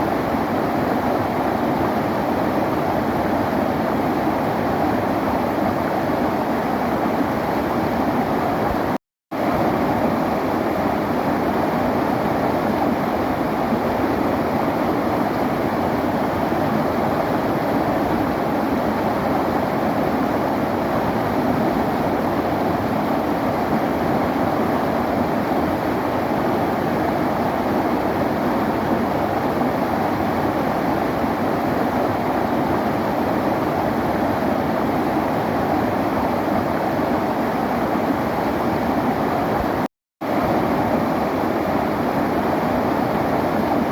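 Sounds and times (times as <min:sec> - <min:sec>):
river water flowing: 0:00.0 - 0:43.9.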